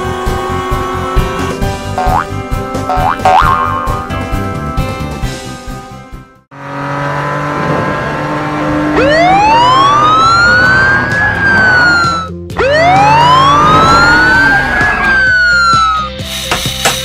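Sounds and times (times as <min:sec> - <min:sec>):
background music: 0:00.0 - 0:06.5, 0:08.6 - 0:17.0
cartoon ambulance siren wailing: 0:08.9 - 0:16.2.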